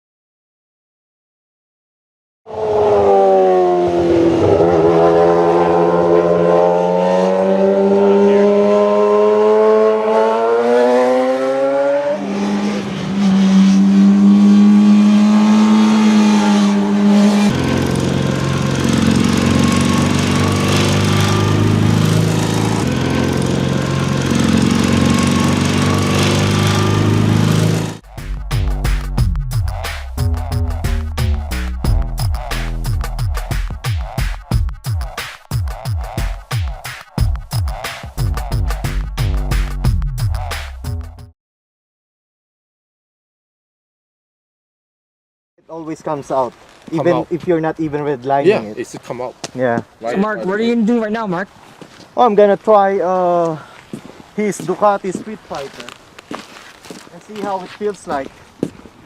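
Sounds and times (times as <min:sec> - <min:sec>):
motorcycle engine revving: 0:02.5 - 0:41.1.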